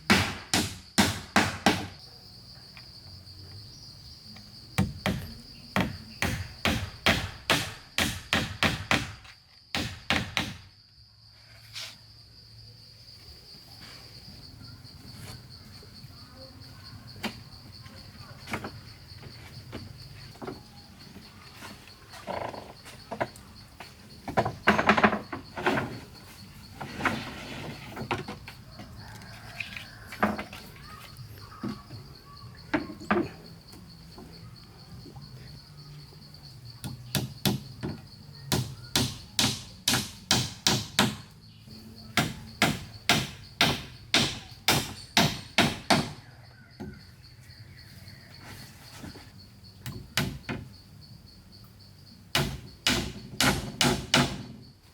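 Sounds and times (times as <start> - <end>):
high insect drone: 0.0 - 54.9
hand tool knocking on wood: 36.8 - 41.2.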